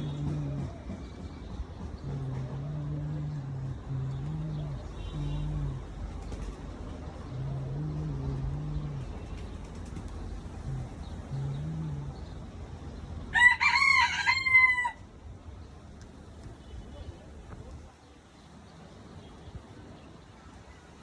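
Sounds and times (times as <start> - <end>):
pigeons cooing: 2.0 - 12.5.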